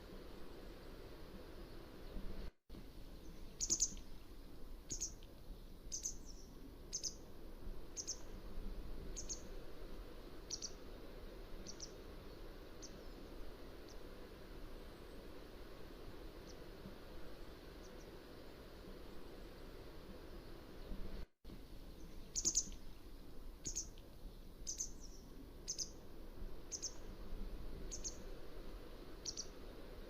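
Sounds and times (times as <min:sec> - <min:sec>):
low background hiss: 0:00.0 - 0:30.0
bird short high calls: 0:22.3 - 0:22.8, 0:29.2 - 0:29.6.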